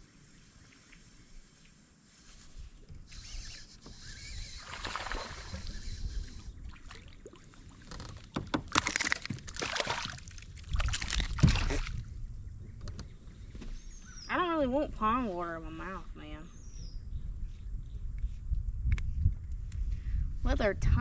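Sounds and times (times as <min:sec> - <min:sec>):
water sloshing at a kayak: 0:04.5 - 0:12.0.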